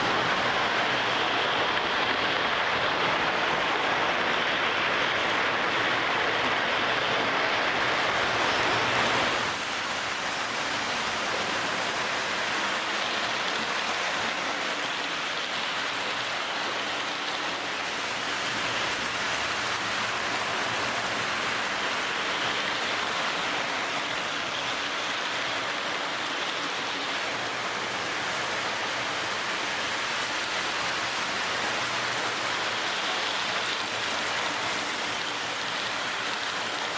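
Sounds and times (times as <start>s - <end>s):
model train whirring on rails: 0.0s - 36.9s.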